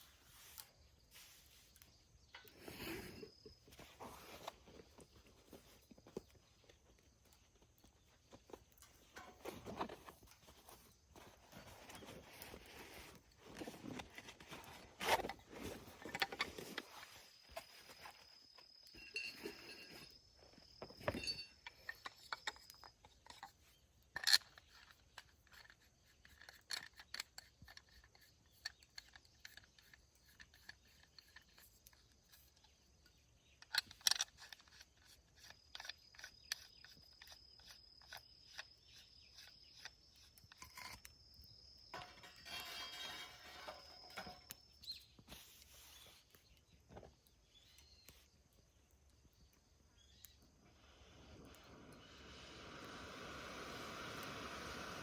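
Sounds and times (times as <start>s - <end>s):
rustling: 0.0s - 23.7s
insects singing: 15.0s - 45.3s.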